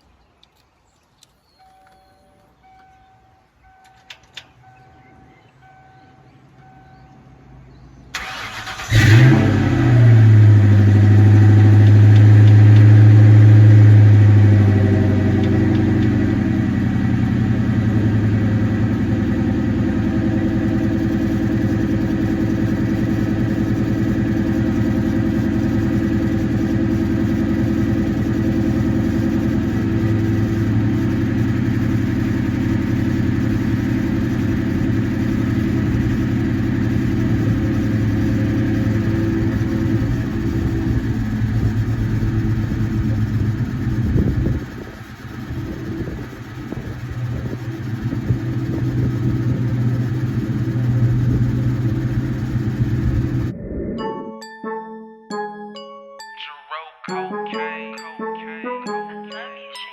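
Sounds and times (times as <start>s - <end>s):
car engine running: 8.2s - 53.6s.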